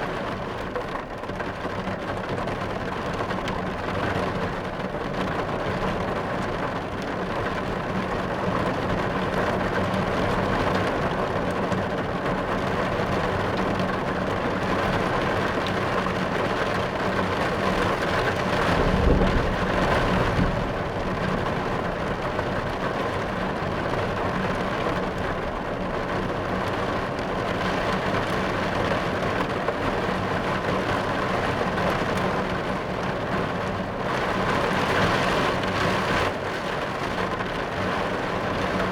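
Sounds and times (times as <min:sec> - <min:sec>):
rain drumming on car roof: 0:00.0 - 0:38.9
low thunder rumble: 0:18.3 - 0:22.8.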